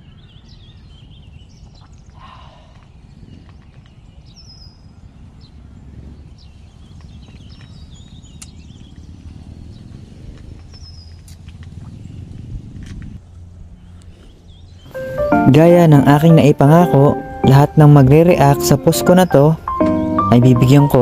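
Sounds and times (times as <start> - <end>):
bird chirps: 0.0 - 12.3
wind rumbling on microphone: 0.0 - 15.3.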